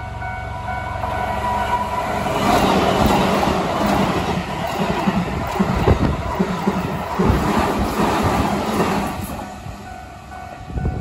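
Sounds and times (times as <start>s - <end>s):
electric train passing at high speed: 0.0s - 11.0s
rhythmic wheel clatter: 2.4s - 9.4s.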